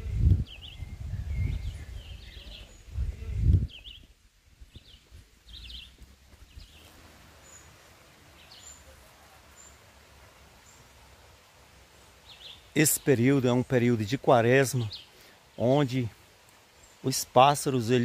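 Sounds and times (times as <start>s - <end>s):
low rumbles on microphone: 0.0s - 7.2s
wild birds singing: 0.0s - 18.0s.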